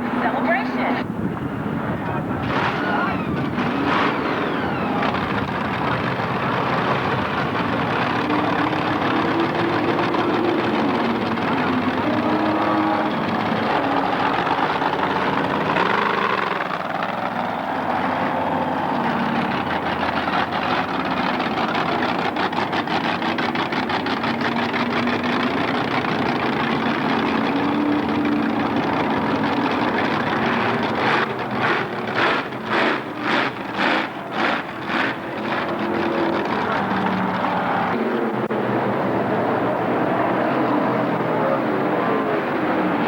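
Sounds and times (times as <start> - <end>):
truck engine running: 0.0 - 43.0.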